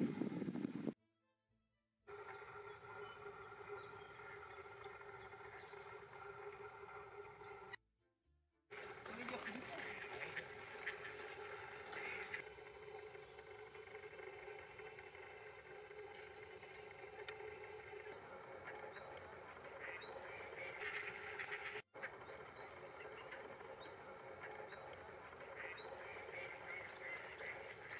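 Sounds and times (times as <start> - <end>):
birds high rising chirps: 2.1 - 7.8, 8.8 - 27.9
harsh bird calls: 8.8 - 27.9.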